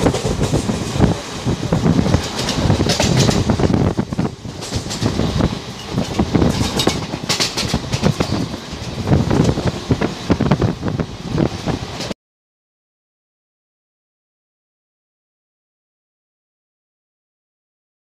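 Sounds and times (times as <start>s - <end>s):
clatter over rail joints: 0.0s - 10.6s
train wheels rumbling: 0.0s - 12.2s.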